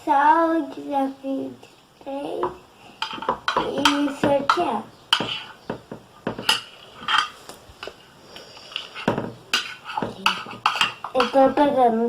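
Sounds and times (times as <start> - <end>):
utensil scraping a bowl: 2.9 - 11.8.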